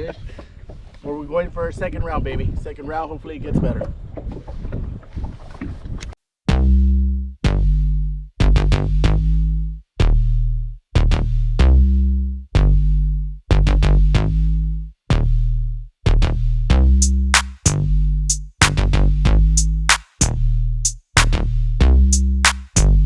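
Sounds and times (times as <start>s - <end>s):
heavy bass-drum beat: 6.5s - 23.0s
crisp hi-hats: 19.6s - 21.4s.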